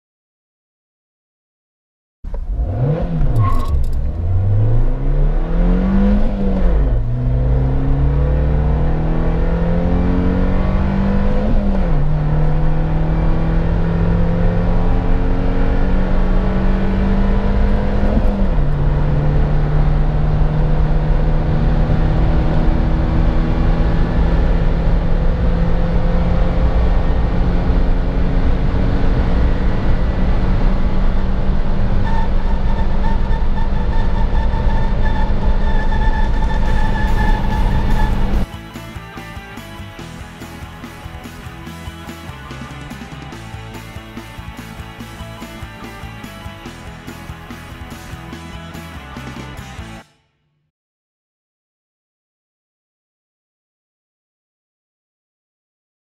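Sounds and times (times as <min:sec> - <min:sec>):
gear upshifts: 0:02.3 - 0:08.1, 0:31.9 - 0:38.5
car engine accelerating: 0:02.3 - 0:50.0.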